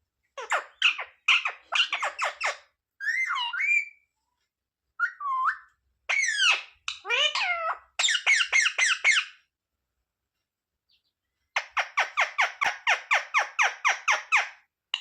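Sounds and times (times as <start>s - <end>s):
parrot calling: 0.4s - 4.0s, 5.0s - 9.4s.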